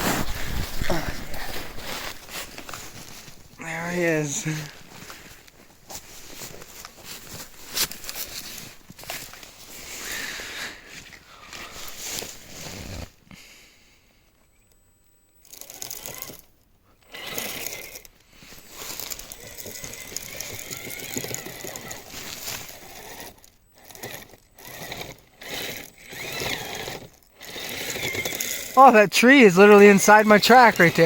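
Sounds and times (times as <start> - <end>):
electric motor and tracks whirring: 14.5 - 31.0.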